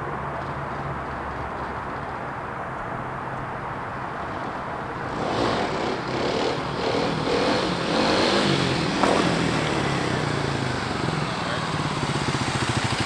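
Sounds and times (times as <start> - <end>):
motorcycle engine revving: 4.9 - 13.0.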